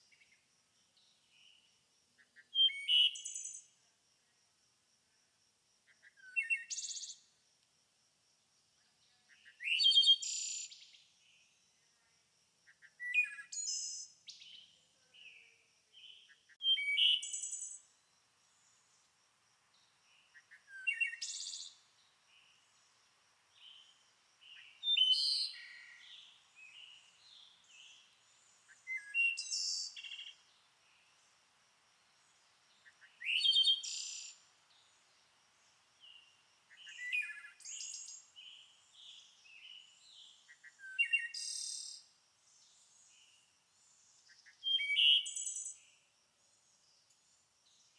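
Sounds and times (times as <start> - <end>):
songbird singing: 0.0 - 3.9, 5.8 - 7.4, 8.8 - 12.1, 12.7 - 47.9
soft bird chirps: 12.7 - 19.0, 19.7 - 31.4, 32.1 - 42.0.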